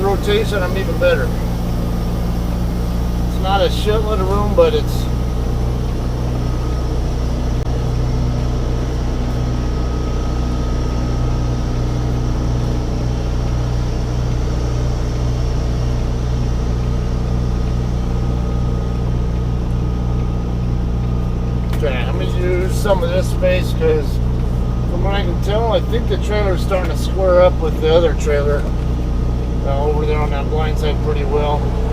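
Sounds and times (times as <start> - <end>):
diesel truck engine running: 0.0 - 31.9
faint steady whine: 0.0 - 31.9.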